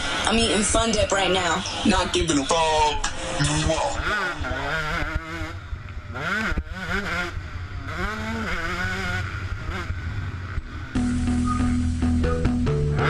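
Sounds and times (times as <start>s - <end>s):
dirt bike engine revving: 0.0s - 13.0s
music with steady tones: 11.0s - 13.0s.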